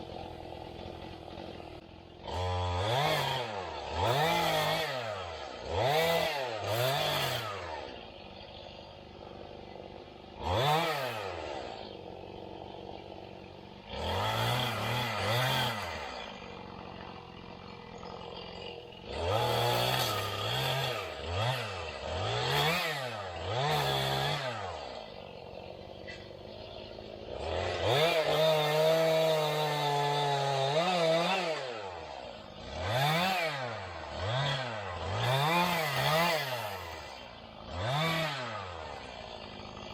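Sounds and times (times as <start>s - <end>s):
engine revving: 0.0s - 39.9s.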